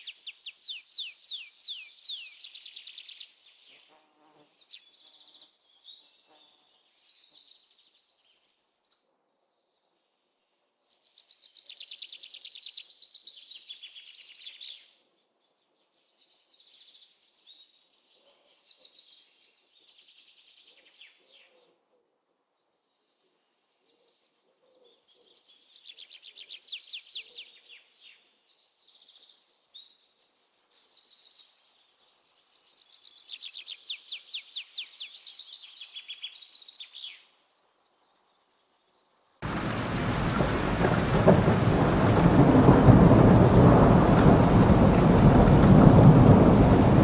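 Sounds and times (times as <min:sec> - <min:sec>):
songbird trilling: 0:00.0 - 0:03.1
heavy rain: 0:39.4 - 0:47.0
low thunder rumble: 0:39.4 - 0:47.0.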